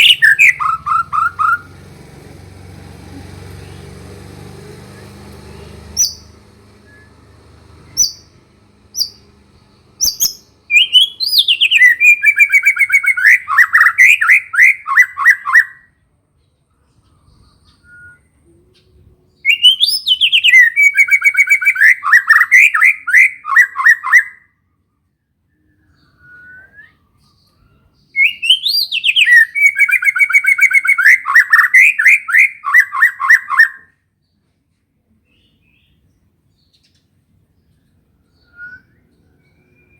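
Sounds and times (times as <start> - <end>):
bird singing with trills: 0.0 - 1.8, 4.7 - 15.9, 16.9 - 24.4, 25.6 - 34.4, 35.2 - 39.9
short bird chirps: 7.9 - 8.4, 10.0 - 13.9.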